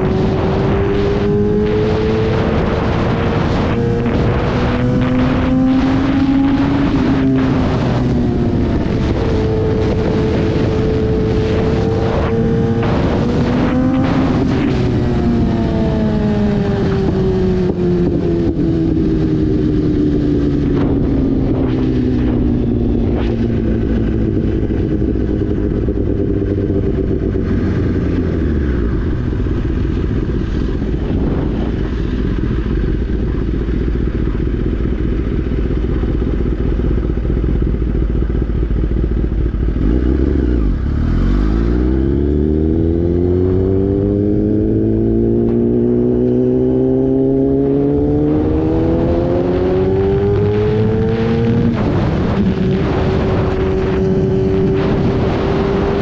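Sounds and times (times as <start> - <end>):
motorcycle engine while riding: 0.0 - 56.0.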